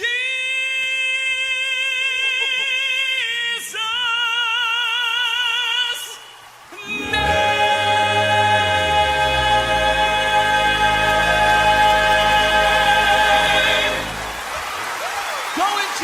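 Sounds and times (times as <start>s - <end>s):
tenor voice singing: 6.8s - 14.5s
vocal quartet singing chord: 6.8s - 14.6s.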